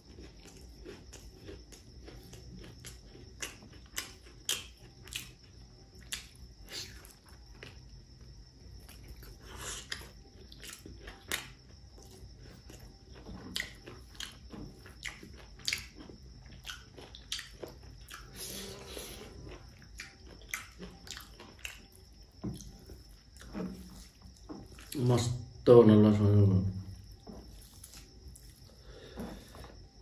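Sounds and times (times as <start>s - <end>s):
person chewing and lip-smacking: 0.0s - 25.0s.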